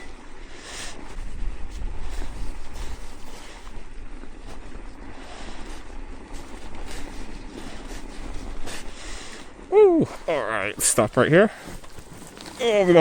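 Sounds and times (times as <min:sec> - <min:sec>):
wind on microphone: 0:00.0 - 0:10.3
bike tyres churning through snow: 0:00.0 - 0:13.0.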